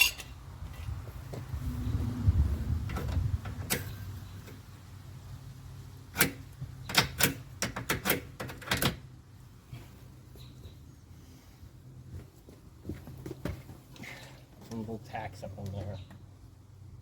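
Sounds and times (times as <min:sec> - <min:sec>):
low rumble: 0:01.4 - 0:03.7.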